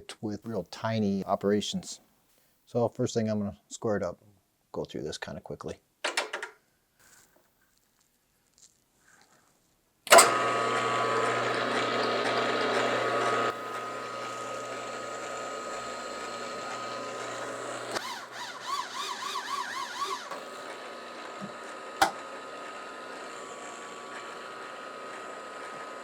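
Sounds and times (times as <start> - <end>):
machine tool whining: 10.1 - 26.0.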